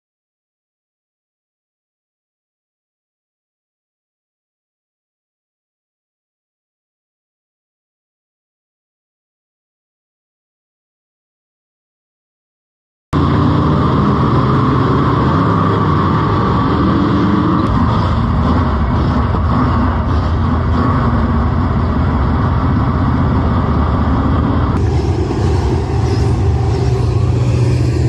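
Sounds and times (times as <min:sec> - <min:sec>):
race car engine running: 0:13.2 - 0:28.0.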